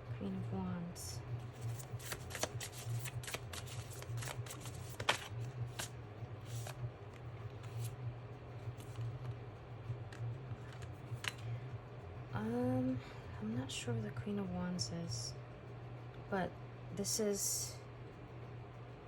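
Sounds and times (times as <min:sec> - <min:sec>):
low hum: 0:00.0 - 0:19.0
playing cards being shuffled: 0:01.6 - 0:08.0, 0:10.1 - 0:11.4.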